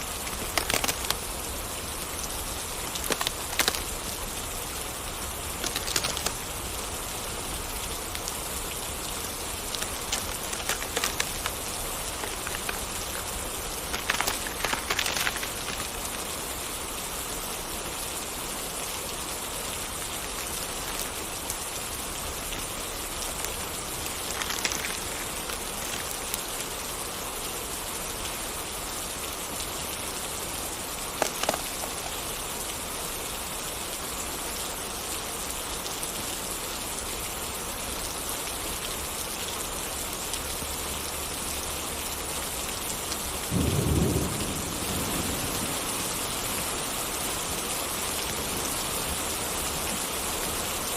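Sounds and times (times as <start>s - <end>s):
steady rain: 0.0s - 50.9s
low thunder rumble: 43.5s - 46.3s.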